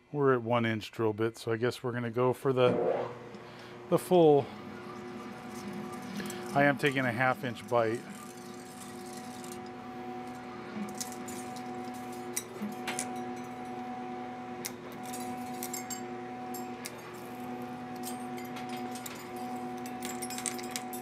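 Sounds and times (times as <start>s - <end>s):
lathe machine hum: 2.6s - 14.9s.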